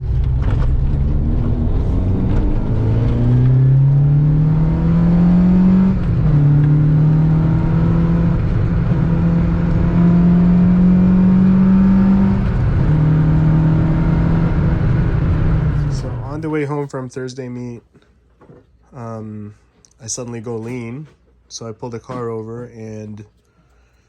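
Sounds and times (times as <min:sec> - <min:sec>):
car engine revving hard: 0:00.0 - 0:16.4.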